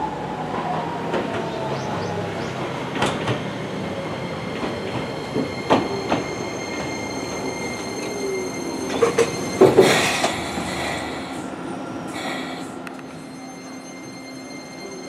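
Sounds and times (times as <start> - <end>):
electric train rumbling: 0.0 - 15.0
high train whine: 0.0 - 15.0
train clatter: 0.5 - 8.2, 8.8 - 11.5.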